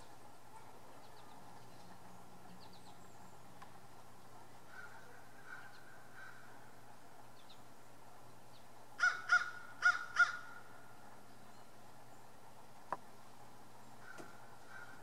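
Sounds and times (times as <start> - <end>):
bird calling: 4.6 - 7.7, 8.5 - 12.3, 13.8 - 15.0.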